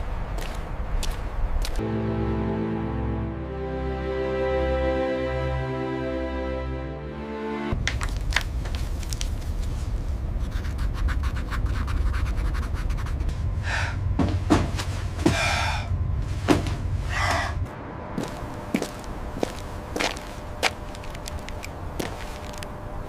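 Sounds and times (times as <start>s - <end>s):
music: 1.8s - 7.9s
steady low rumble: 7.7s - 23.0s.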